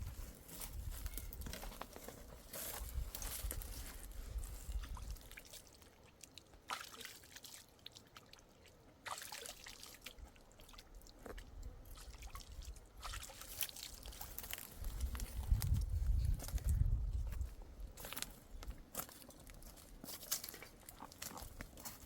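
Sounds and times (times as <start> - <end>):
water sloshing and trickling: 0.5 - 18.4, 19.0 - 22.0.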